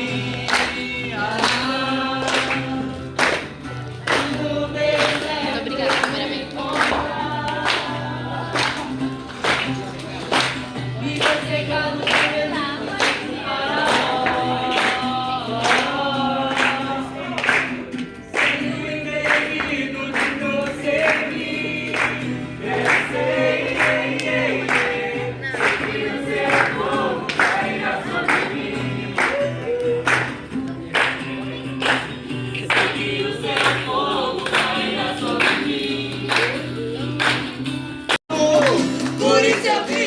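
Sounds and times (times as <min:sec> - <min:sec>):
choir singing gospel song: 0:00.0 - 0:10.2, 0:10.9 - 0:30.1, 0:30.8 - 0:36.9, 0:39.0 - 0:40.0.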